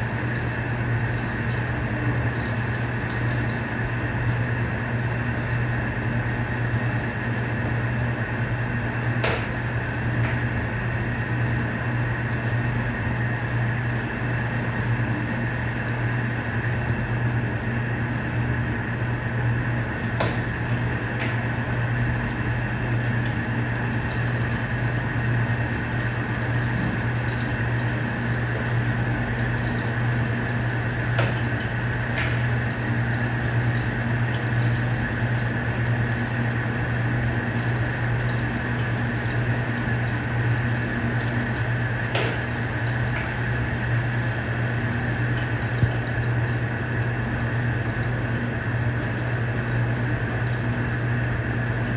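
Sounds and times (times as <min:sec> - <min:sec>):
washing machine motor hum: 0:00.0 - 0:51.9
water churning: 0:00.0 - 0:51.9.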